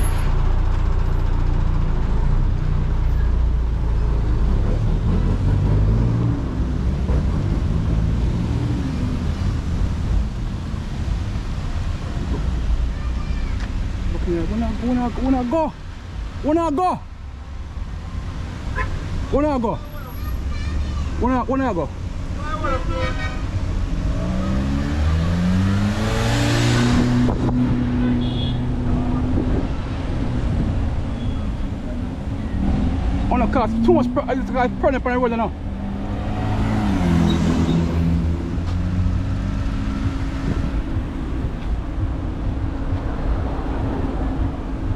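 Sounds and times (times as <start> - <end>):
vehicle engine accelerating: 0.0 - 12.4, 23.6 - 44.9
vehicle engine running: 37.6 - 44.9.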